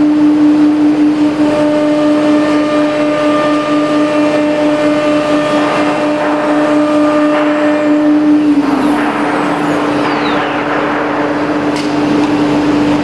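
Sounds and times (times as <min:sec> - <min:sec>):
router spindle whine: 0:04.7 - 0:11.1
tool cutting wood: 0:05.2 - 0:10.6.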